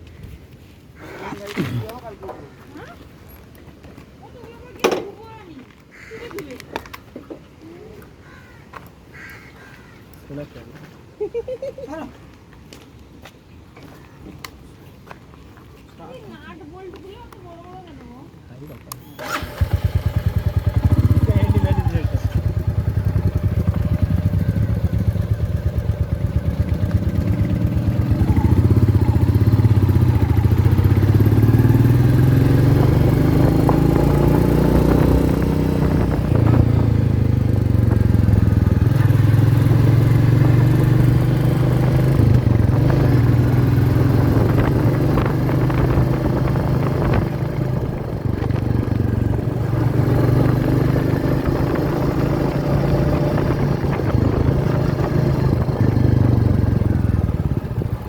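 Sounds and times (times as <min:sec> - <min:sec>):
motorcycle engine revving: 0:19.0 - 0:58.0.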